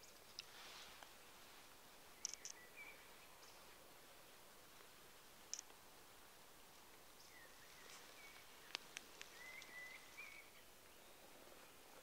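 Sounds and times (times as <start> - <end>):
bird calls: 2.1 - 3.7, 7.2 - 11.8
sharp clicks: 2.2 - 2.6, 5.5 - 5.8.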